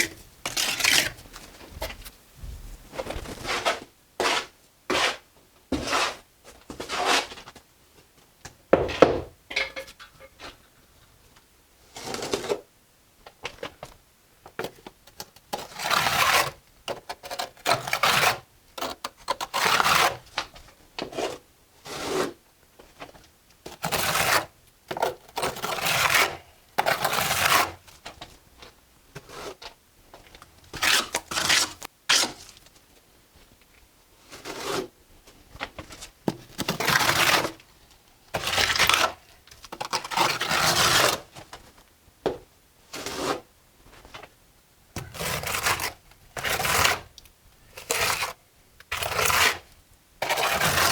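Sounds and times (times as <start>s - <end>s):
trowel scraping mortar on brick: 3.5s - 7.4s, 23.8s - 27.8s, 34.4s - 34.9s, 45.0s - 47.1s, 47.8s - 50.9s.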